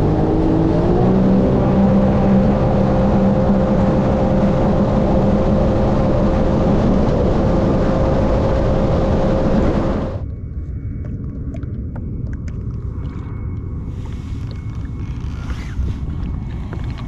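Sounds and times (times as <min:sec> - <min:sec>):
wind and water rushing: 0:00.0 - 0:10.2
watercraft engine running: 0:00.0 - 0:10.3, 0:11.0 - 0:17.0.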